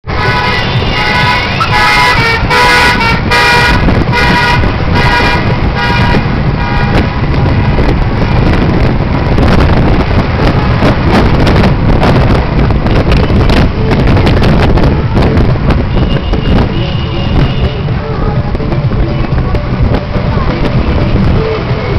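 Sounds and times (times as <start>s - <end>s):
motorcycle engines rumbling: 0.0s - 21.9s
vehicle horns honking: 0.1s - 7.8s, 15.8s - 18.0s.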